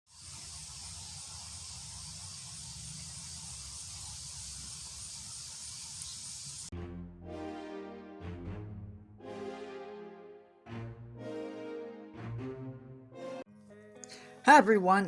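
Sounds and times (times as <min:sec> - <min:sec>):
steady hiss: 0:00.1 - 0:06.7.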